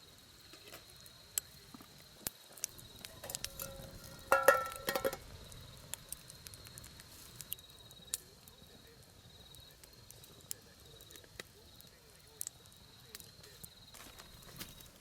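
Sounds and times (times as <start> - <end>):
campfire pops and crackles: 0.0 - 15.0
ringing metallic clinks: 3.2 - 5.3.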